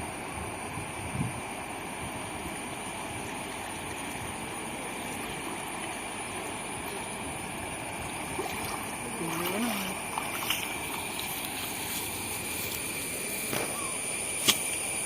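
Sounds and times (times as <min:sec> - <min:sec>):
thin high steady tone: 0:00.9 - 0:15.0
rushing flowing water: 0:02.1 - 0:13.2.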